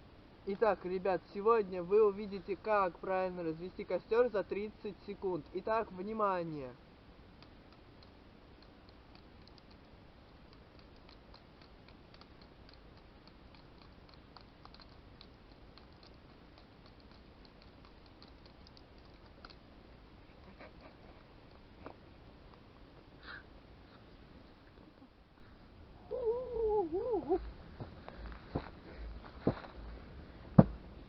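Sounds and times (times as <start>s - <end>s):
faint room hiss: 0.0s - 31.0s
faint high ticks: 7.4s - 19.6s.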